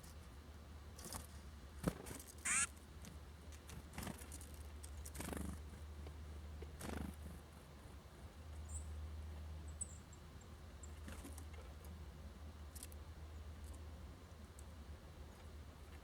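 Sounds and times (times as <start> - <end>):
songbird harsh call: 2.5 - 2.7.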